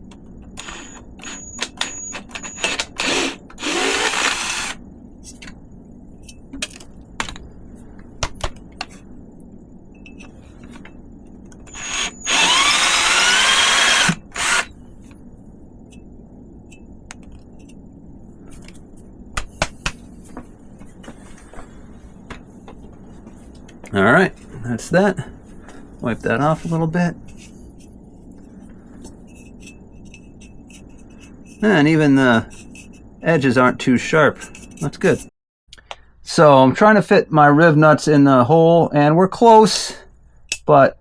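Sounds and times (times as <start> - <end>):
power drill whining: 0.6 - 4.8, 11.7 - 14.7.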